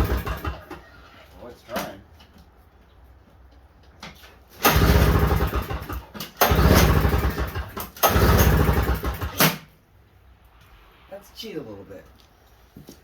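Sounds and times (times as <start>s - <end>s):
snowblower engine cranking: 0.0s - 0.9s, 4.5s - 9.7s.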